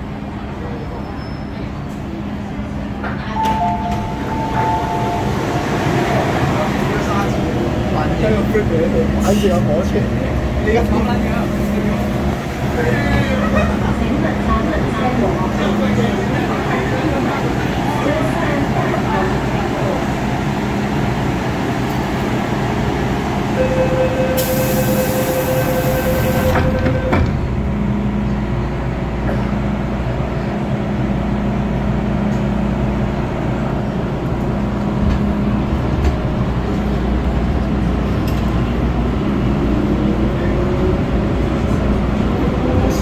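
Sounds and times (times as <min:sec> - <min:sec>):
held tone: 0:03.4 - 0:05.8, 0:23.6 - 0:27.3.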